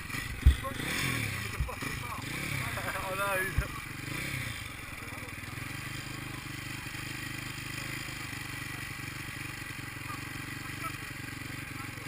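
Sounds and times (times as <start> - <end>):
distant engines buzzing: 0.0 - 12.0.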